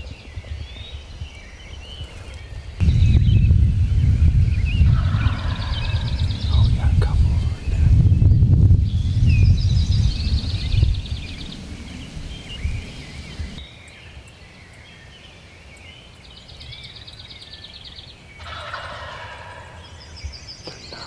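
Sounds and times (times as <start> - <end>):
songbirds trilling: 0.1 - 13.8
low rumbling noise: 2.8 - 13.6
turkey gobbling: 4.8 - 7.9, 11.2 - 13.6, 18.4 - 19.9.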